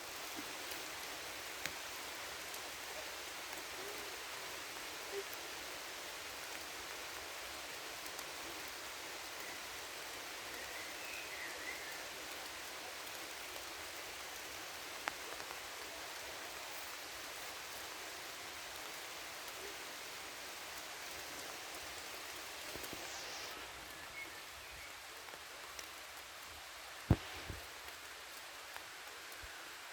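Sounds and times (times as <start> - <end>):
steady rain falling: 0.0 - 29.9
sharp loud raindrop: 27.0 - 28.1.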